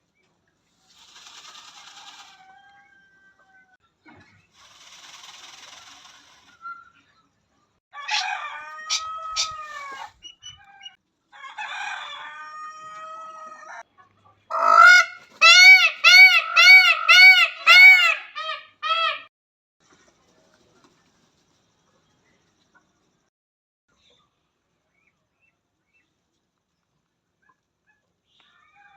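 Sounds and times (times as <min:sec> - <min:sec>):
peacock calling: 0:00.9 - 0:03.7, 0:08.0 - 0:11.0, 0:14.5 - 0:19.3.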